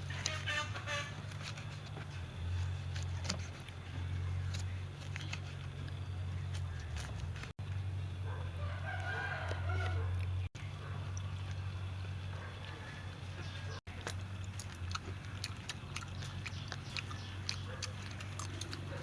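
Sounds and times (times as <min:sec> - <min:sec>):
rooster crowing: 0:08.3 - 0:10.2.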